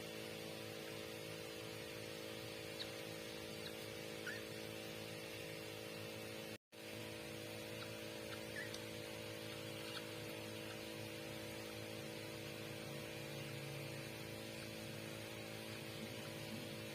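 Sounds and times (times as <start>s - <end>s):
electrical hum with hiss: 0.0s - 16.9s.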